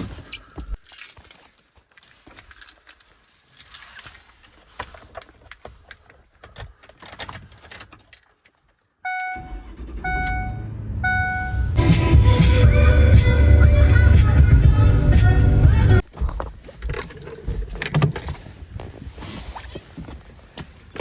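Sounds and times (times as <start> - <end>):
truck engine low rumble: 9.4 - 16.0
background music: 11.1 - 16.0.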